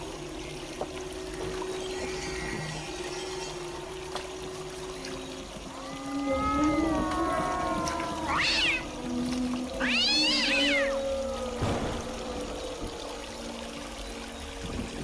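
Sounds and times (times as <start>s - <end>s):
cat-like animal calling: 6.1s - 9.0s, 9.8s - 11.1s.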